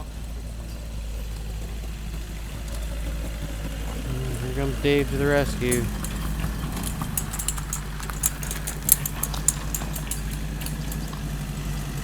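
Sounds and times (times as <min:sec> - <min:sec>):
tractor engine running: 0:00.0 - 0:12.0
sharp clicks and rattles: 0:02.5 - 0:12.0.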